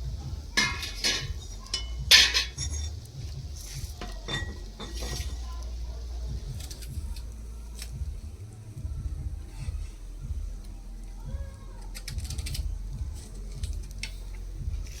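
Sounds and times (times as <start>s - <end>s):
low steady hum: 0.0s - 15.0s
utensil clinking against cookware: 0.5s - 5.7s.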